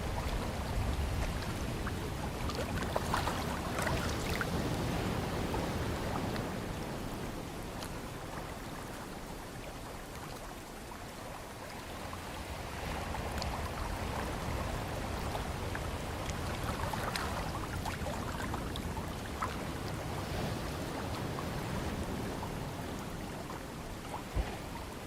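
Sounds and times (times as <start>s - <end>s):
ocean surf washing in: 12.5s - 25.0s.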